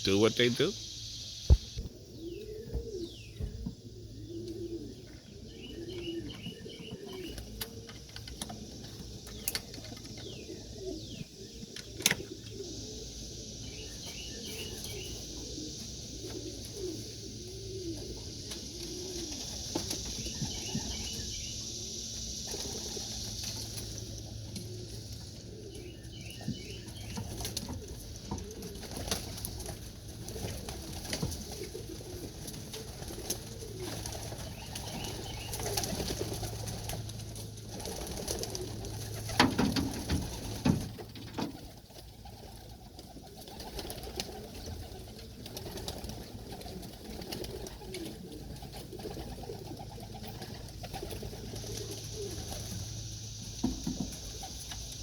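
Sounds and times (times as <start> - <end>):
pigeons cooing: 0.0 - 55.0
wing flaps: 27.1 - 52.8.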